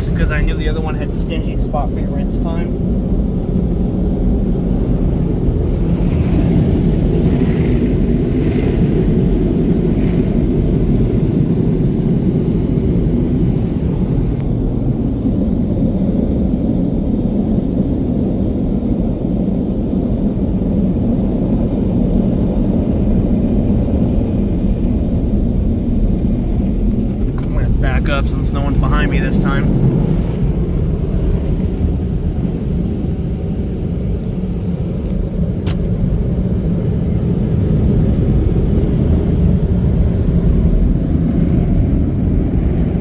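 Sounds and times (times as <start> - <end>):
car wash air dryers blowing: 22.2 - 43.0.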